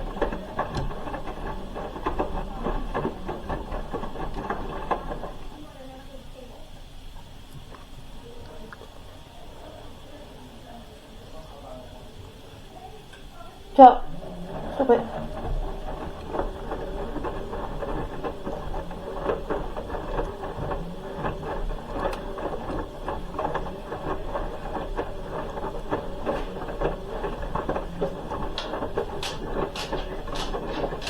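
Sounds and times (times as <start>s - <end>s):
small irregular clicks: 0.0s - 5.6s, 14.0s - 31.0s
washing machine drum turning: 0.0s - 9.2s, 12.3s - 31.0s.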